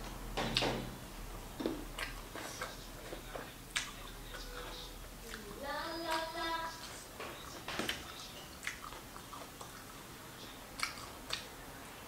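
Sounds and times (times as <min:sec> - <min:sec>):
chewing and mouth smacks: 0:01.6 - 0:11.5
sharp mouth clicks: 0:01.9 - 0:02.8, 0:03.7 - 0:04.1, 0:07.9 - 0:10.0, 0:10.8 - 0:11.5.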